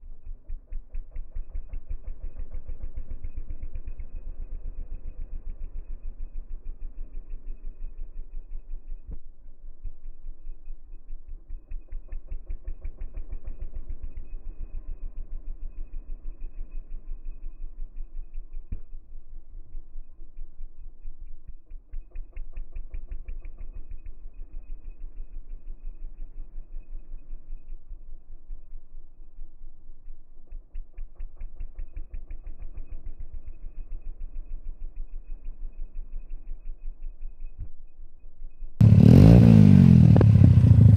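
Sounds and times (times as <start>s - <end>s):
scooter engine running: 0.0s - 40.9s
exhaust backfires: 38.8s - 40.9s.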